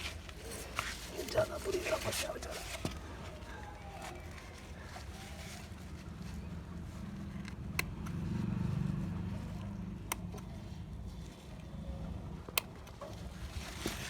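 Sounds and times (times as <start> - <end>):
passing motor vehicle rumble: 4.4 - 13.8.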